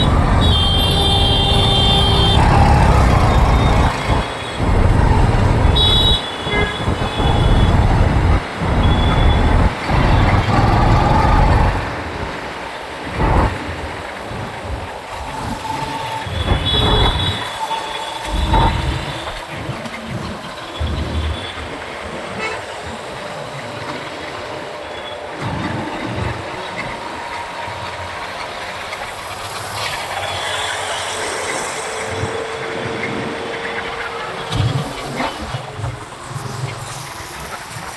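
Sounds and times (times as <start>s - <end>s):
motorcycle engine: 0.0s - 12.5s
wind buffeting microphone: 0.0s - 17.5s
road traffic: 0.0s - 37.9s.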